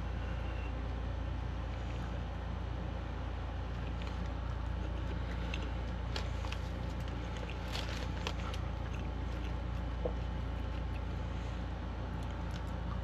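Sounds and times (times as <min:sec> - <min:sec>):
steady low hum: 0:00.0 - 0:13.0
soft chewing: 0:01.5 - 0:13.0
food-handling clicks and crackles: 0:03.7 - 0:11.1.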